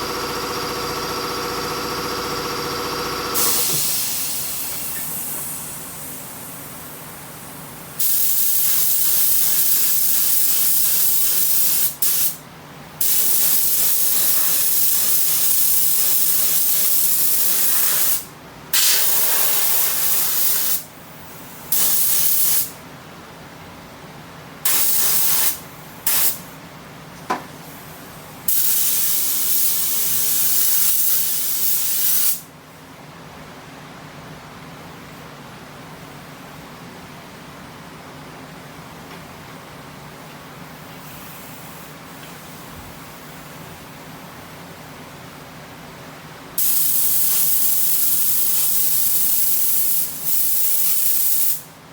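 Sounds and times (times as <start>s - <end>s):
spray gun hissing: 3.3s - 6.3s, 8.0s - 12.4s, 13.0s - 20.9s, 24.7s - 26.4s, 46.6s - 51.6s.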